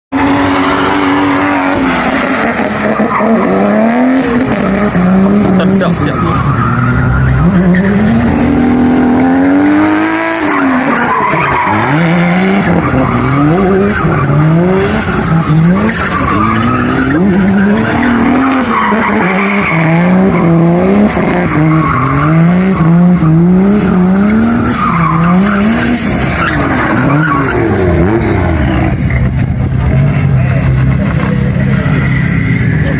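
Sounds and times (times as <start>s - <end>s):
engine revving: 0.1s - 32.9s
tyres skidding and squealing: 0.1s - 32.9s.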